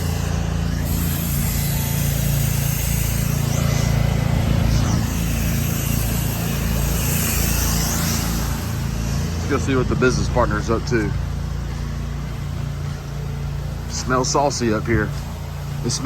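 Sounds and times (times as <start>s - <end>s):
high-pressure water spray hissing: 0.0s - 16.0s
pressure washer engine running: 0.0s - 16.0s.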